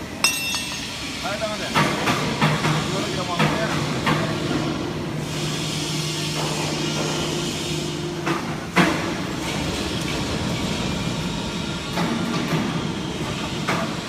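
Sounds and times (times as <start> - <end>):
machinery humming: 0.0 - 12.2.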